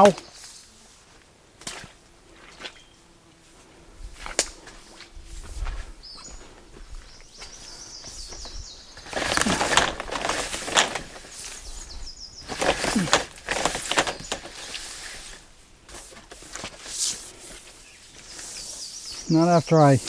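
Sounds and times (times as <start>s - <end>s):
small bird singing: 6.0s - 14.9s, 17.8s - 20.0s.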